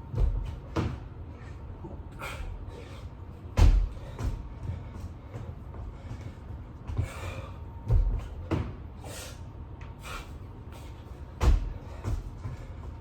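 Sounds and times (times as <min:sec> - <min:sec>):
person breathing hard: 0:01.3 - 0:13.0
body thudding on floor: 0:11.4 - 0:12.3.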